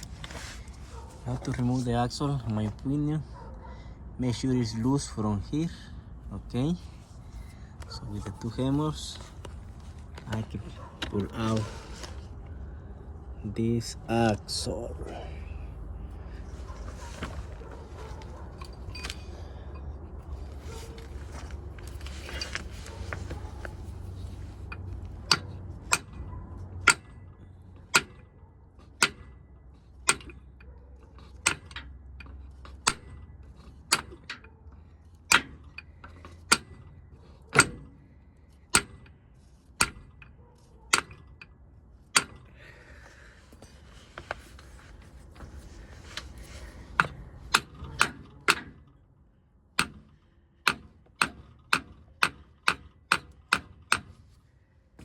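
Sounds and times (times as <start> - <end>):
hammer on metal: 49.8 - 54.1.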